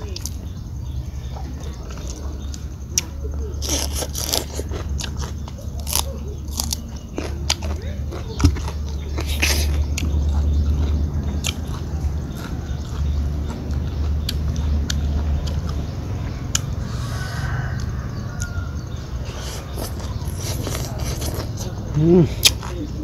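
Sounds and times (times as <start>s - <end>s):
steady low rumble: 0.0s - 23.0s
person chewing food: 1.4s - 22.9s.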